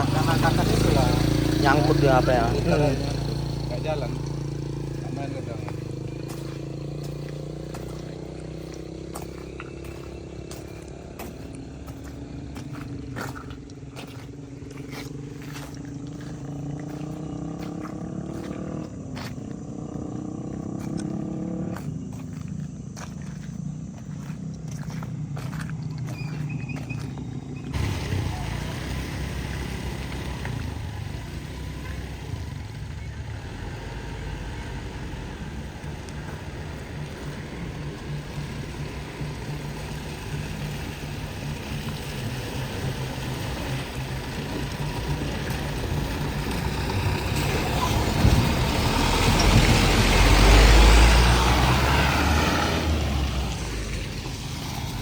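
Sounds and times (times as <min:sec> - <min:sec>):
diesel truck engine idling low: 0:00.0 - 0:13.9, 0:26.2 - 0:51.8.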